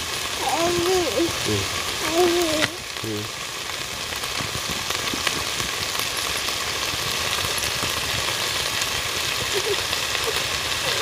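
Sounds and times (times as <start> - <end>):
vegetables sizzling in oil: 0.0 - 11.0
short voice sound: 0.4 - 3.3.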